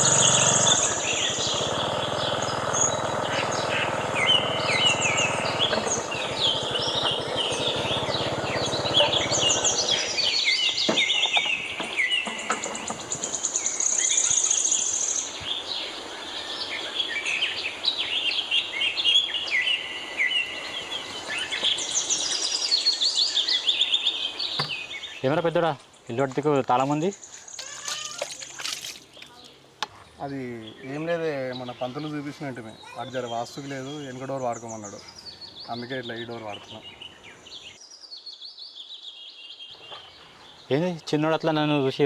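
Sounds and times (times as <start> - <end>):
birds chirping and calling: 0.0 - 14.8, 26.8 - 29.6.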